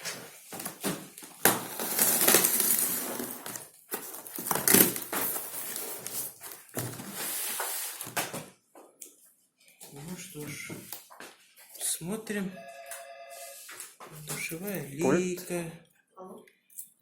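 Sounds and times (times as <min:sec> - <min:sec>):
packaging rustling and crinkling: 0:00.0 - 0:08.5.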